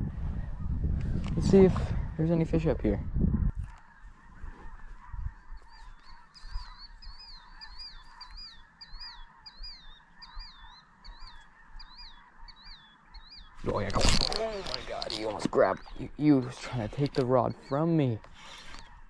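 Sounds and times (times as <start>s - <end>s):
bird whistling: 5.6s - 13.6s.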